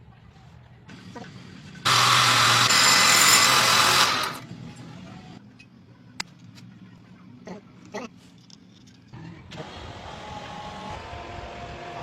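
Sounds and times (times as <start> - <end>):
electric power tool running: 1.9 - 4.4.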